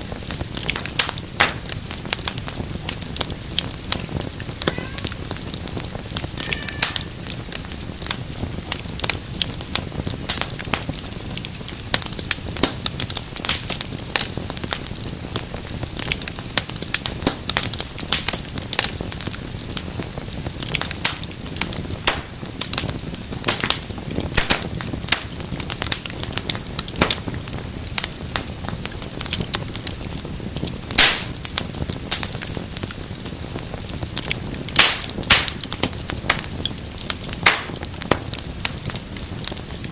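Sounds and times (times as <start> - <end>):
fire crackling and popping: 0.0 - 39.9
low rush of flame: 0.0 - 39.9.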